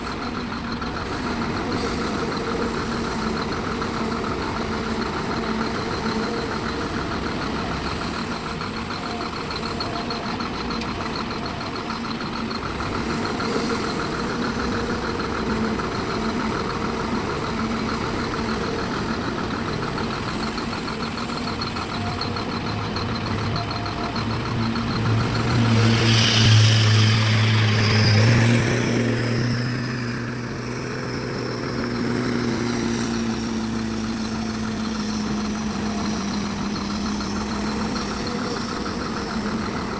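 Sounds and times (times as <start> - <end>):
heavy diesel engines running: 0.0 - 39.9
hiss: 25.3 - 30.1.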